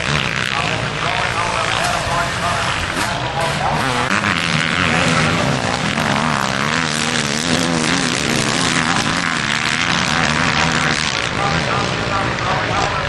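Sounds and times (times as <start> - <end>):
motocross bike engines racing: 0.0 - 13.0.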